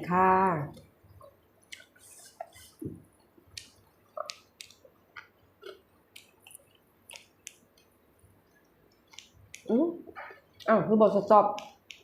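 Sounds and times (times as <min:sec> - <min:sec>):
chewing mouth smacks: 0:03.5 - 0:07.6.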